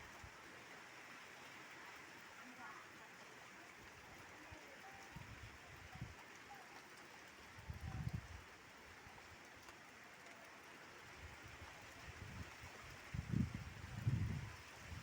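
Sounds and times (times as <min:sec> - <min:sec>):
steady rain hiss: 0:00.0 - 0:15.0
wind gust hitting microphone: 0:12.2 - 0:15.0.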